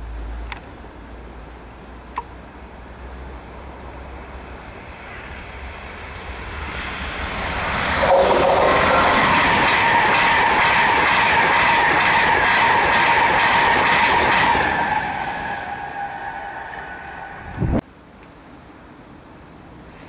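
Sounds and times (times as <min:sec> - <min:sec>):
electric train passing at speed: 0:00.0 - 0:17.8
steady whine: 0:04.2 - 0:17.8.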